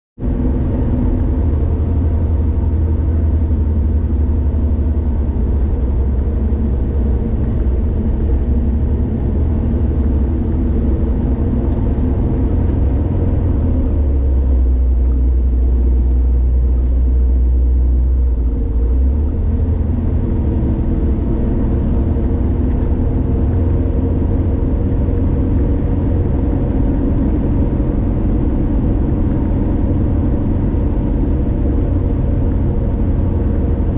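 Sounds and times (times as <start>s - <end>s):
car engine and tyre rumble: 0.2s - 33.9s.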